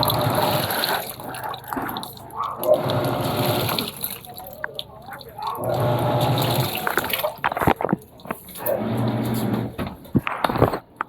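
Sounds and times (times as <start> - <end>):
water splashing in washing machine: 0.0 - 11.0.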